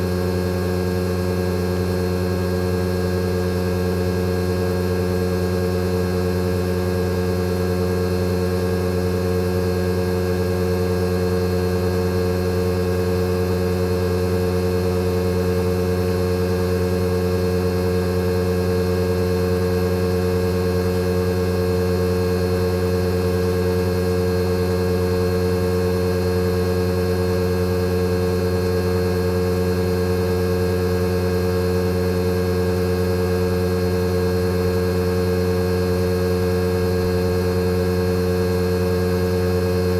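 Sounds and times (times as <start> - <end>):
air conditioner compressor hum: 19.2 - 39.9.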